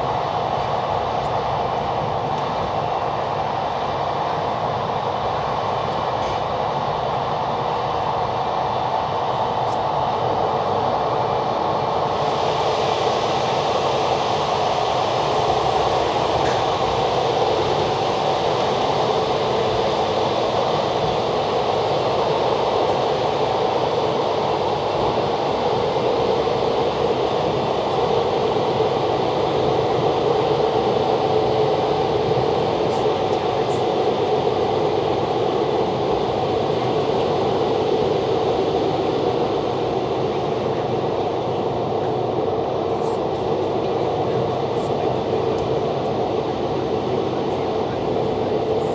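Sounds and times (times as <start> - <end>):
moving train rumble: 0.0 - 19.0.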